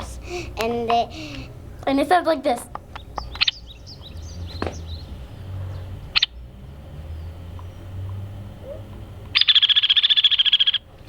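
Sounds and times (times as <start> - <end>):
woodpecker sharp peek call: 2.8 - 6.4, 8.6 - 10.9
woodpecker rattling whinny: 2.8 - 10.9.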